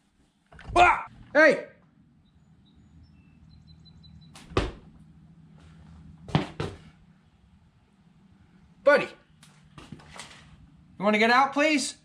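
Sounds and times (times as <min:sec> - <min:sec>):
small bird peeping: 0:02.2 - 0:04.6.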